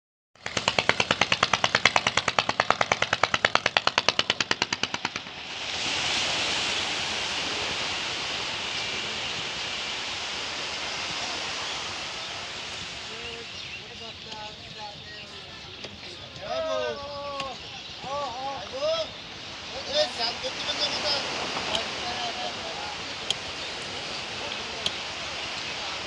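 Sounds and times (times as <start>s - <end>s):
small engine running: 0.4s - 5.8s
steady rushing noise: 0.4s - 26.0s.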